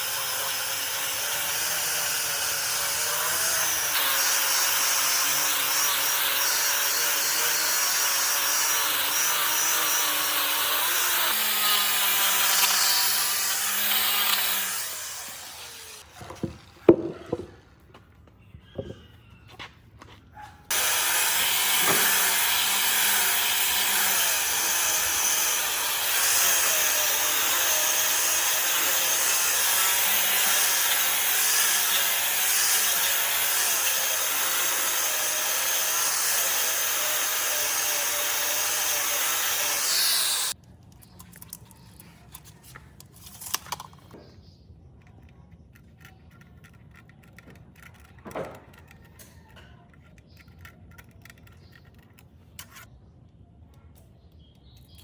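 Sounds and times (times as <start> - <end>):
workshop tool hissing: 20.7 - 40.6.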